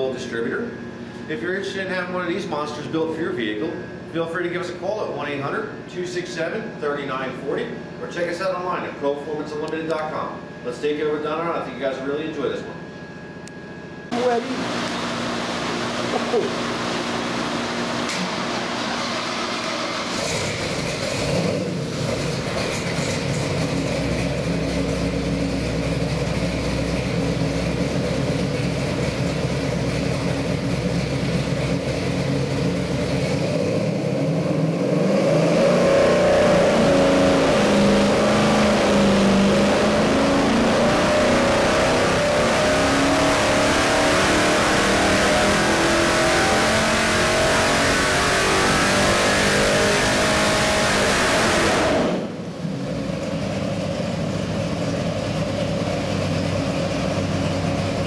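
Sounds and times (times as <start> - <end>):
car engine running: 14.1 - 58.0.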